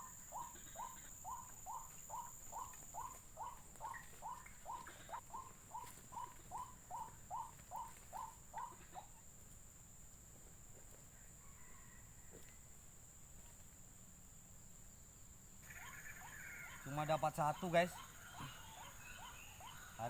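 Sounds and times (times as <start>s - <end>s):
waterhen calling: 0.0s - 9.2s, 15.6s - 20.0s.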